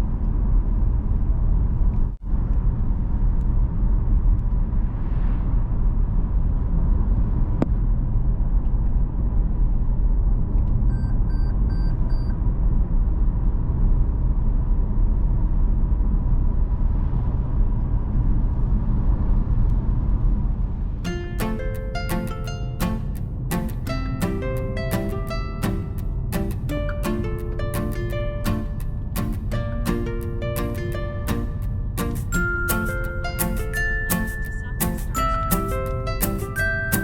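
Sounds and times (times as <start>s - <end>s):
short high beeps: 32.3s - 37.0s.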